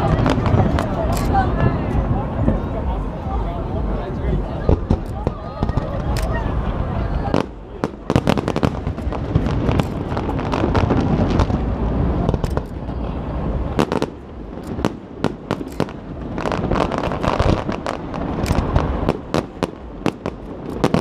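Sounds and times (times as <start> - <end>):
fireworks bangs and crackles: 0.0 - 21.0
deep rumble of bursting shells: 7.3 - 21.0.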